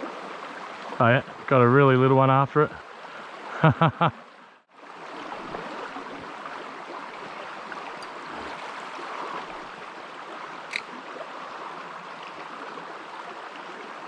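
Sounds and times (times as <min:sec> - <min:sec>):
creek water over rocks: 0:00.0 - 0:14.0.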